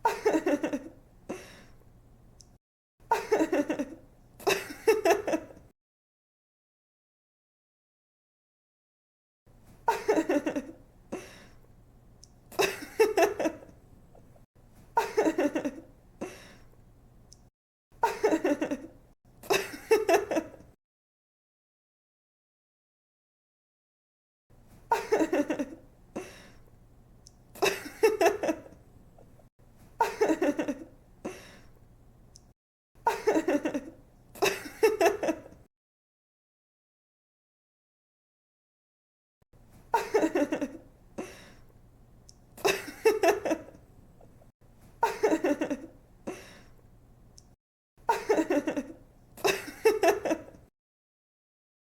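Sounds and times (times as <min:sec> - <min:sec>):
woman giggling: 0:00.0 - 0:01.6, 0:03.1 - 0:05.6, 0:09.9 - 0:11.3, 0:12.6 - 0:13.7, 0:15.0 - 0:15.9, 0:18.0 - 0:20.7, 0:24.9 - 0:26.3, 0:27.6 - 0:28.8, 0:30.0 - 0:30.9, 0:33.1 - 0:35.6, 0:40.0 - 0:41.3, 0:42.6 - 0:43.8, 0:45.0 - 0:46.5, 0:48.1 - 0:50.6.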